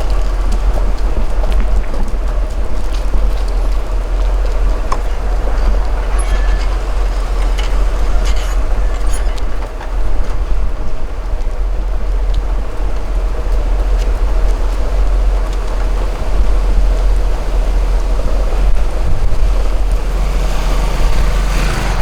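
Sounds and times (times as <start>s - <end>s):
road and engine hiss: 0.0s - 22.0s
wind rumble on microphone: 0.0s - 22.0s
faint rattles: 2.3s - 11.5s.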